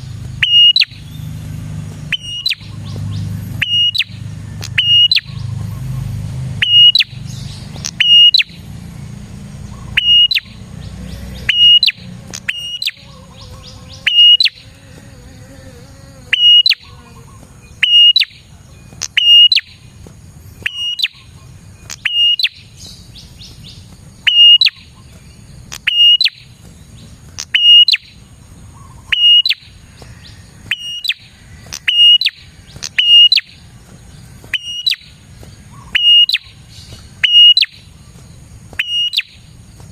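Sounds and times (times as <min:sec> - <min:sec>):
bird calling high note: 0:00.4 - 0:01.2, 0:02.1 - 0:02.9, 0:03.6 - 0:05.4, 0:06.6 - 0:07.2, 0:07.8 - 0:08.6, 0:09.7 - 0:10.7, 0:11.4 - 0:19.8, 0:20.7 - 0:22.7, 0:24.2 - 0:25.0, 0:25.8 - 0:26.4, 0:27.4 - 0:28.2, 0:28.8 - 0:33.6, 0:34.5 - 0:36.6, 0:37.2 - 0:37.8, 0:38.8 - 0:39.4.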